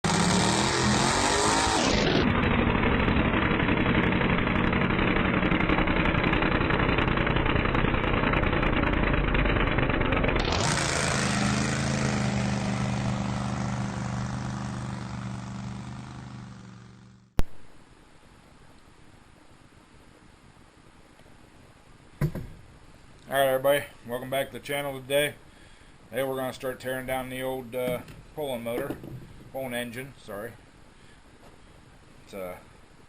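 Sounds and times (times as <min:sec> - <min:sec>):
small engine revving high: 0:00.0 - 0:05.0, 0:09.6 - 0:17.3.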